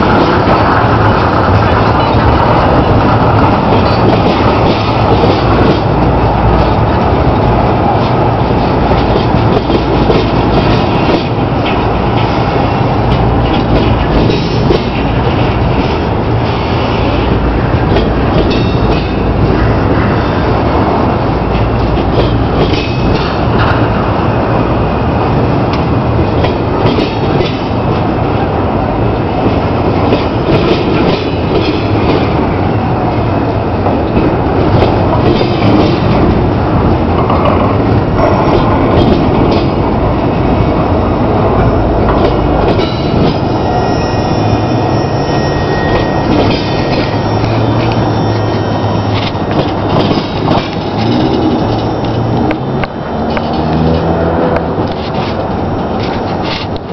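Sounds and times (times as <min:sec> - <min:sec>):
wheels clicking over rail joints: 0:00.0 - 0:19.7, 0:21.5 - 0:24.1, 0:25.7 - 0:28.4, 0:33.8 - 0:39.9, 0:49.1 - 0:56.9
freight train cars rolling past: 0:00.0 - 0:56.9
high wheel squeal: 0:43.4 - 0:52.8.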